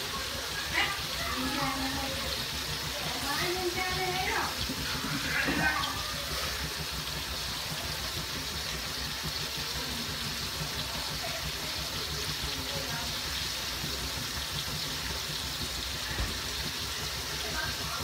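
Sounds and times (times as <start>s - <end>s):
beef sizzling in a wok: 0.0s - 18.0s.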